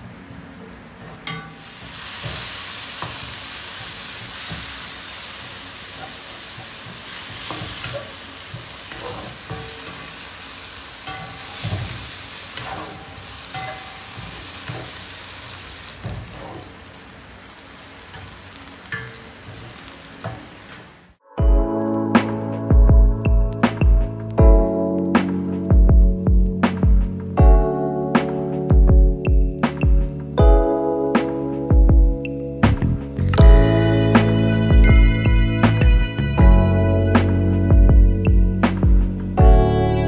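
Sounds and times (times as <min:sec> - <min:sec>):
food sizzling in hot oil: 0:01.3 - 0:21.2
cooking utensil knocking pan: 0:11.0 - 0:15.0.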